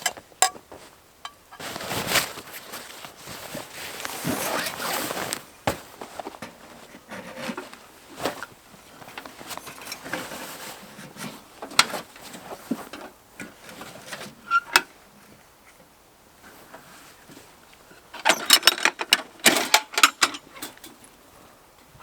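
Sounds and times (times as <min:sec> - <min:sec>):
rustling: 0:00.0 - 0:14.4.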